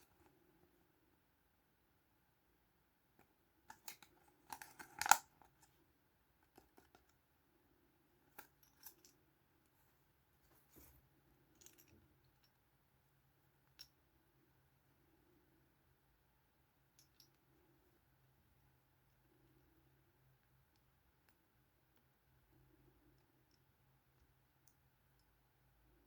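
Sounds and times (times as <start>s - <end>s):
small plastic toys clicking: 3.7s - 5.3s.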